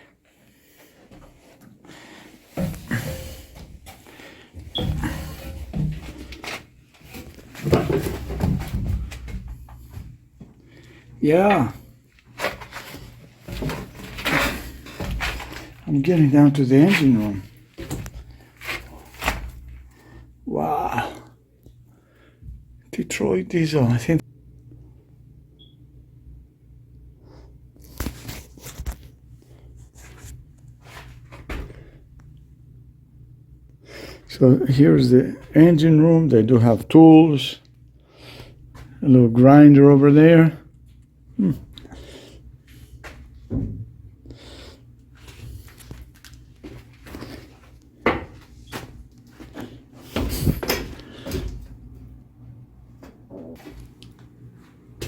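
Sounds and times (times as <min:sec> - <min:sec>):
knocks and clunks of handling things: 0:01.0 - 0:10.8, 0:11.5 - 0:20.1, 0:42.7 - 0:44.1, 0:45.2 - 0:52.2.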